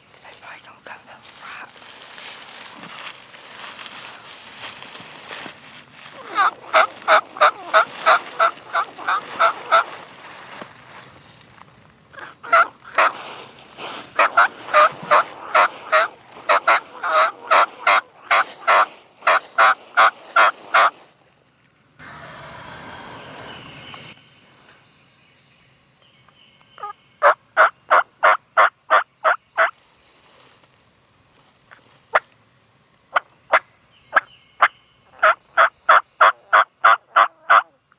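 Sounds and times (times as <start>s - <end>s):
wild turkey calling: 6.0s - 10.6s, 12.1s - 21.0s, 22.0s - 24.8s, 26.3s - 29.7s, 33.1s - 37.7s.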